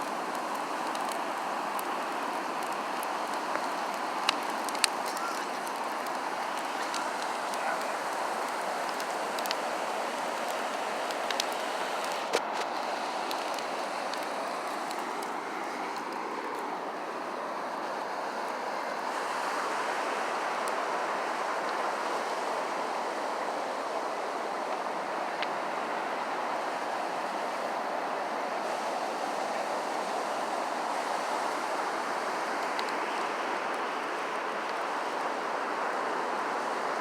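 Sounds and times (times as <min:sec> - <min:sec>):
bonfire pops: 0:00.0 - 0:16.8, 0:32.5 - 0:35.5
beach surf rushing: 0:00.0 - 0:37.0
wind: 0:00.0 - 0:37.0.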